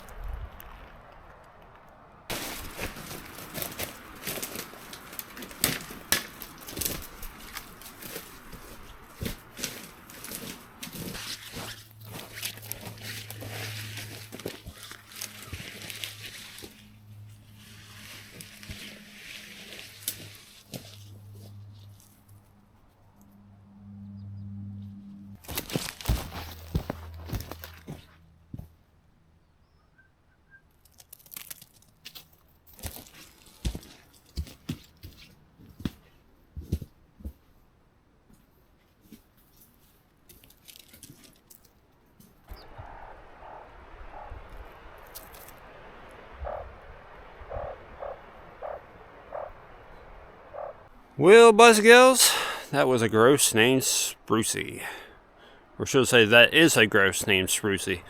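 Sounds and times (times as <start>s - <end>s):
dry leaves and twigs crackling: 0.0s - 23.4s, 25.4s - 28.7s, 30.7s - 36.9s, 38.3s - 51.0s
footsteps crunching on forest floor: 2.3s - 22.4s, 25.4s - 28.7s, 31.1s - 37.4s, 42.4s - 50.8s
steady low hum: 42.5s - 51.2s.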